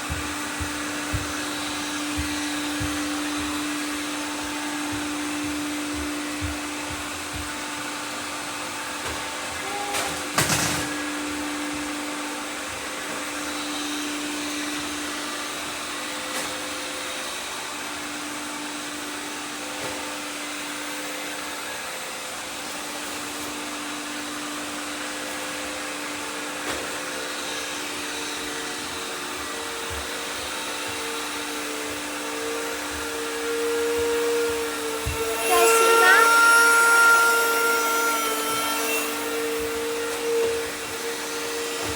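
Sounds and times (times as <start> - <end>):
robot vacuums whirring: 0.0 - 41.9.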